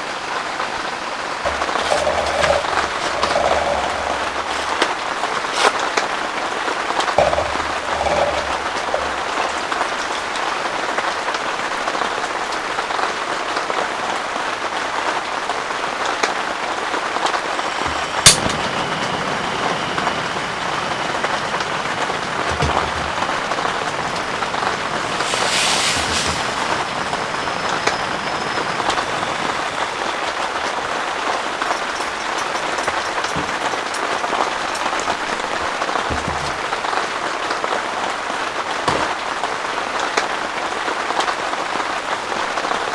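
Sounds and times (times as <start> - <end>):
heavy rain pouring: 0.0 - 42.9
brief hiss: 17.7 - 30.2.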